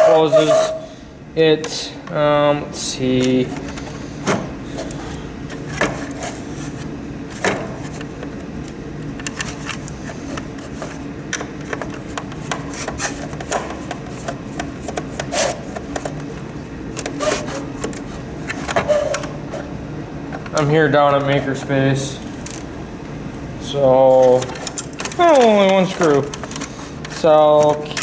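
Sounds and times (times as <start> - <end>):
steady low hum: 0.0 - 28.0
plastic parts clicking and knocking: 7.3 - 19.7, 20.3 - 21.7, 22.3 - 22.7, 24.1 - 28.0.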